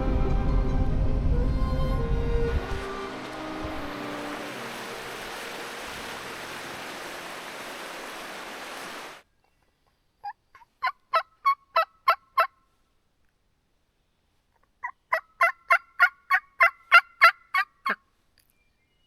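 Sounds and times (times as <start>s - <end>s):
steady rushing noise: 0.0s - 9.2s
turkey calling: 10.2s - 12.6s, 14.8s - 18.0s.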